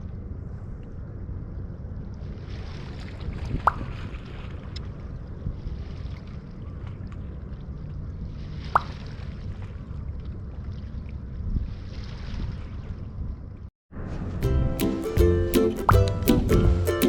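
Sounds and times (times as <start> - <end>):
sea noise at shore: 0.0 - 17.0
wind: 0.0 - 17.0
sharp water plop: 3.5 - 4.9, 8.6 - 9.3, 15.8 - 16.7.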